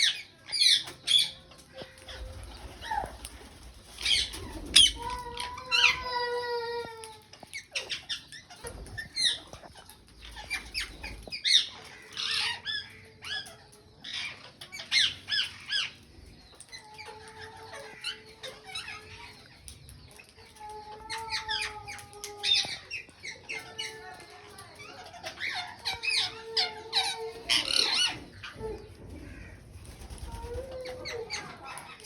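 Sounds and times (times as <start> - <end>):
parakeets squawking: 3.9 - 6.2, 7.4 - 16.0, 24.8 - 32.0.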